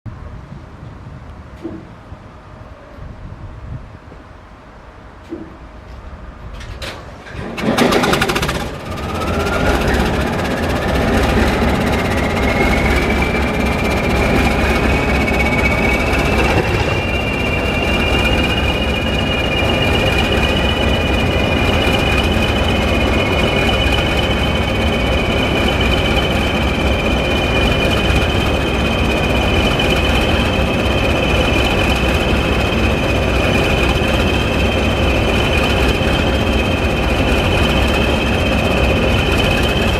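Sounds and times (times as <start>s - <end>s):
diesel engine rumble: 5.7s - 39.9s
loud engine burst: 7.4s - 39.6s
turbocharger whistle: 8.0s - 39.9s.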